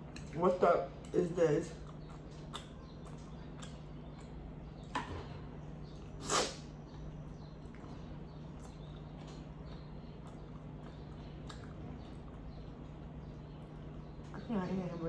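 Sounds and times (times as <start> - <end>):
low hum: 0.0 - 15.0
person chewing wetly: 1.7 - 5.0, 5.8 - 14.3.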